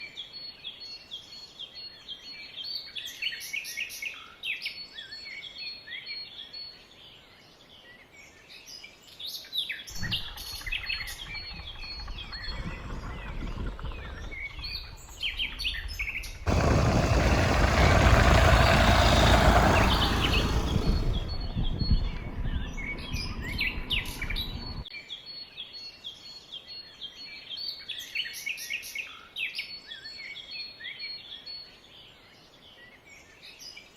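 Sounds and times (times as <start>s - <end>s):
birds chirping: 9.9s - 24.9s
loud rumbling noise: 10.0s - 24.8s.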